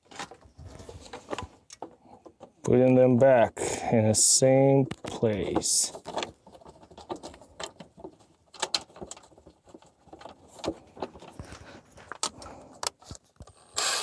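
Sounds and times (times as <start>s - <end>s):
plastic clicks and knocks: 4.8s - 13.6s.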